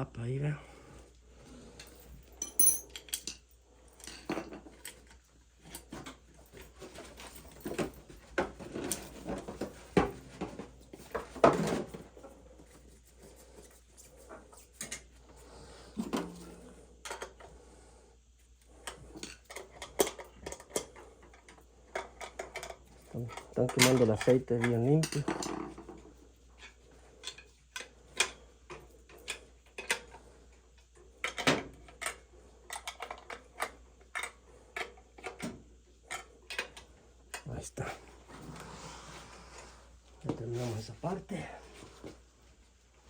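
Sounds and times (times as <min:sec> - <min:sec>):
metal clinks and clanks of tools: 0:01.8 - 0:08.1.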